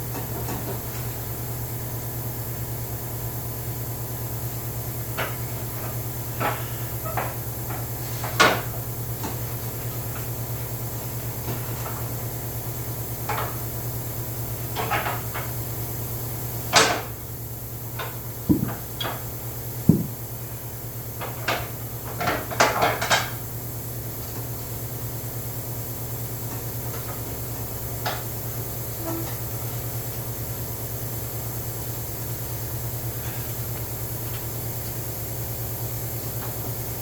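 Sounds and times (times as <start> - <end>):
steady low hum: 18.1 - 21.0.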